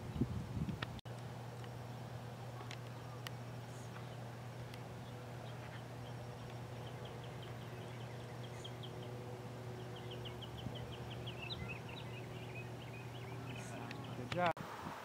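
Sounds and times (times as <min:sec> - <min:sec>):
steady low hum: 0:00.0 - 0:15.0
bird chirping high notes: 0:05.0 - 0:14.3.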